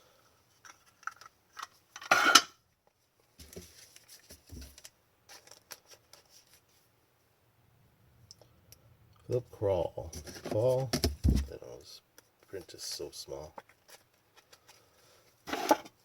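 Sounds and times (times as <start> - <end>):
cards scraping rustle: 3.4 - 6.8.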